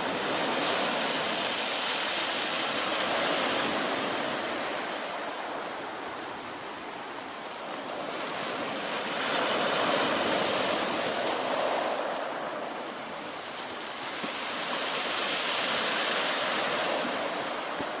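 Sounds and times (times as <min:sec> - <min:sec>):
waves washing onto shore: 0:00.0 - 0:18.0.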